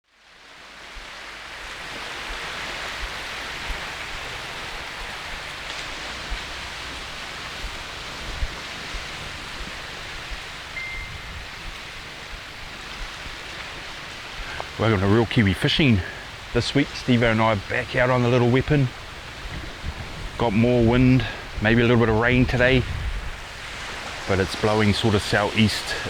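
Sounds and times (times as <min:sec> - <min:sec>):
wind buffeting microphone: 0:00.6 - 0:26.0
strong wind hissing: 0:01.0 - 0:26.0
faint high whistle: 0:10.8 - 0:11.4.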